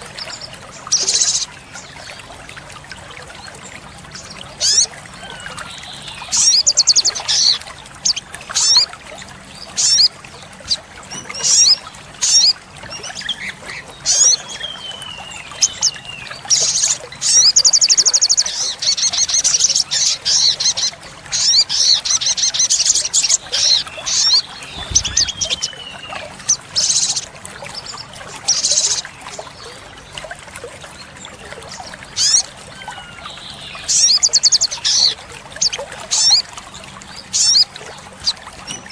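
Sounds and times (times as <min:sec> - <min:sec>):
sunbird singing trills: 0:23.2 - 0:27.2.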